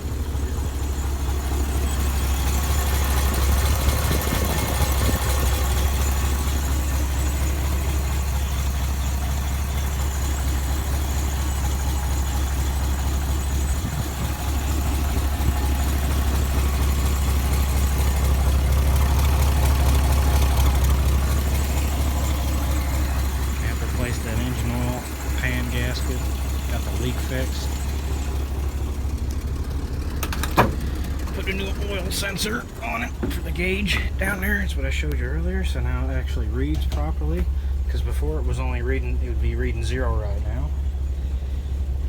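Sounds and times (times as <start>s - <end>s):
truck engine idling: 0.0s - 42.0s.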